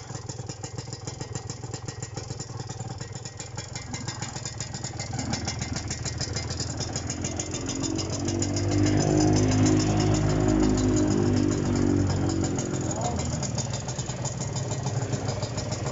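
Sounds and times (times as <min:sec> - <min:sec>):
two-stroke motorcycle engine running: 0:00.0 - 0:15.9.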